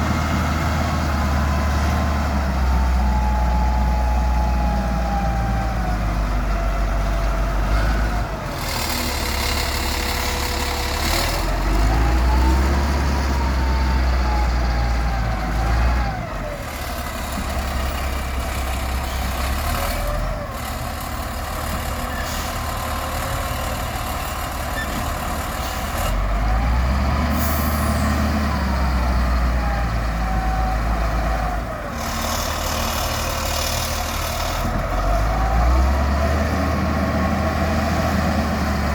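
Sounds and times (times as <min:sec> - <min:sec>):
diesel engines revving: 0:00.0 - 0:38.9
sand loaded into dump truck: 0:16.9 - 0:28.8.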